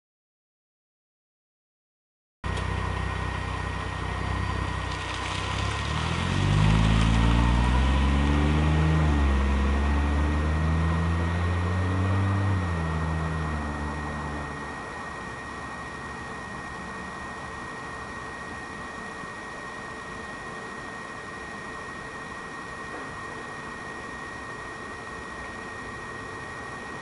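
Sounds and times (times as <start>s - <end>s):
car engine idling and revving: 2.5s - 18.3s.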